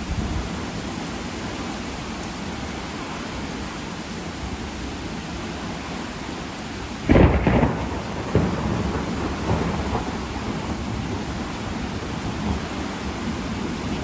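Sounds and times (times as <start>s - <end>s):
heavy rain: 0.0s - 14.0s
thunderclap and rumbling: 7.0s - 14.0s.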